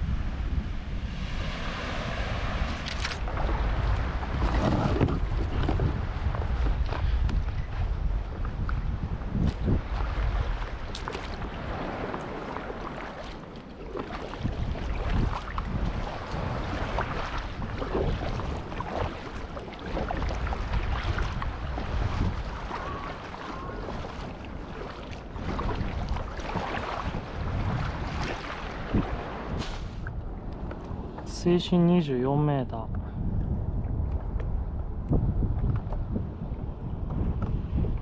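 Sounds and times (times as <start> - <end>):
wind buffeting microphone: 0.0 - 38.0
water splashing against kayak: 1.1 - 31.3.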